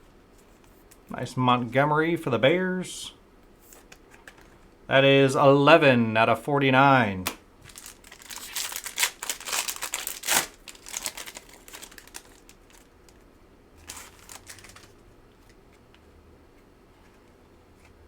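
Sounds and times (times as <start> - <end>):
foil wrapper crinkling: 7.6 - 15.6.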